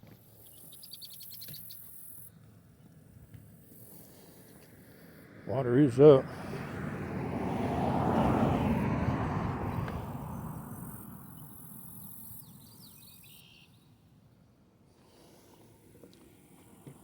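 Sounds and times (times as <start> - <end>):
faint bird or insect chirps: 0.4 - 2.4, 10.3 - 14.0
car passing: 3.5 - 13.6.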